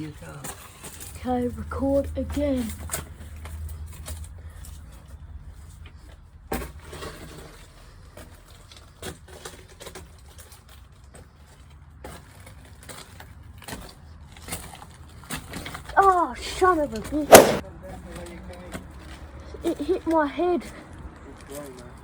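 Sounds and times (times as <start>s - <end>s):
sharp knocks: 17.3s - 17.6s.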